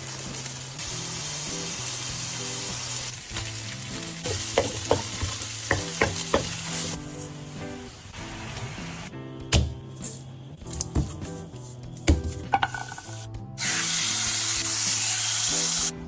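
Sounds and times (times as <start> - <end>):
noodles sizzling in a wok: 0.0 - 9.1, 12.8 - 16.0
soft background music: 0.0 - 16.0.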